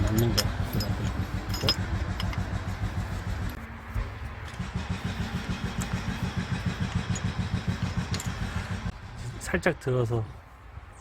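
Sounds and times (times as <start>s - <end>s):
engine idling: 0.0s - 9.7s.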